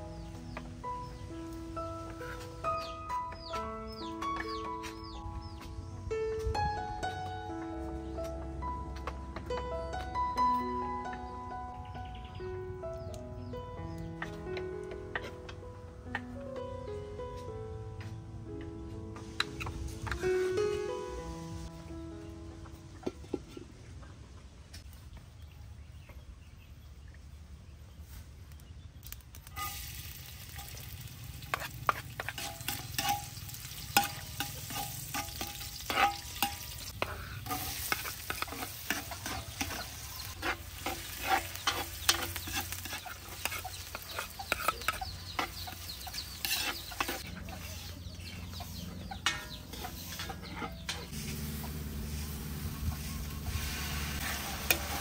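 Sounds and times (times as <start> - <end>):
onions sizzling in oil: 29.4 - 47.9, 51.1 - 55.0
metal ladle scraping a pan: 29.5 - 55.0.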